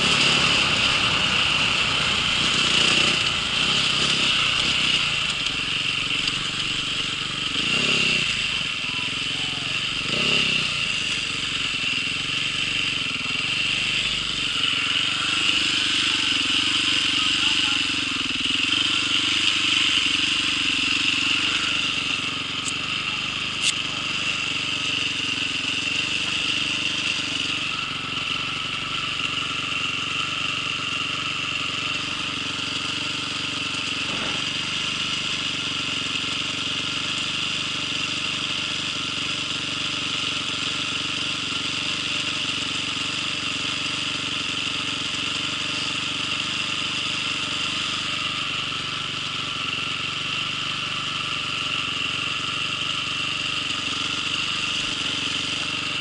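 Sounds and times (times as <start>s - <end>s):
high whine: 0.0s - 29.0s
vehicle engine running: 0.0s - 56.0s.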